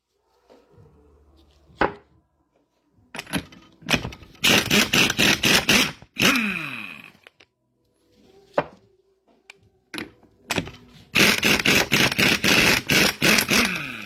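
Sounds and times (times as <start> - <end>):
metal parts clicking and knocking: 3.2 - 7.4, 10.0 - 14.0.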